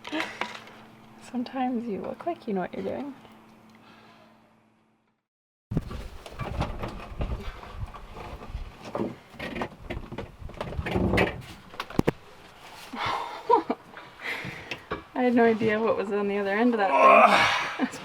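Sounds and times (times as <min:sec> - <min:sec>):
knocks and scrapes on boat parts: 0:05.7 - 0:12.8.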